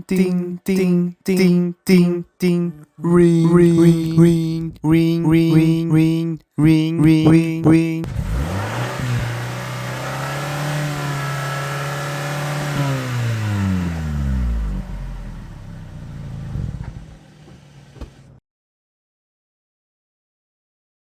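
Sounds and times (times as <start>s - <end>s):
man imitating a motor: 0.0s - 8.5s.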